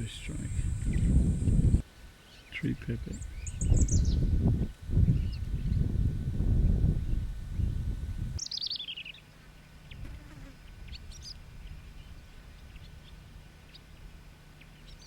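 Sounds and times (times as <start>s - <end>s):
birds calling: 0.0s - 4.4s.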